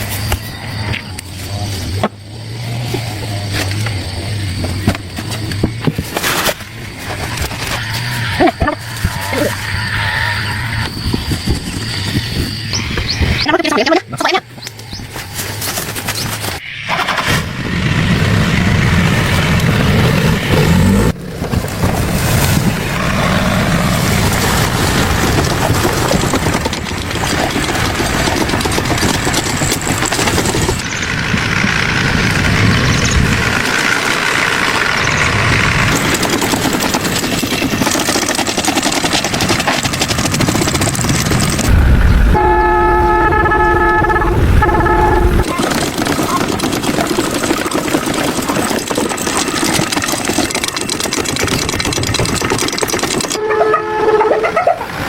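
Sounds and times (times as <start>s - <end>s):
loud vehicle noise: 0.0s - 52.4s
vehicle horn: 41.7s - 45.5s, 53.4s - 54.7s.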